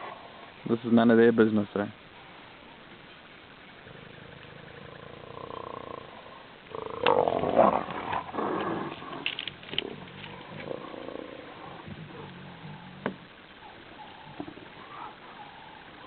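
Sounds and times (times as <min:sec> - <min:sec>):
hyenas calling and crying: 0:06.8 - 0:16.0.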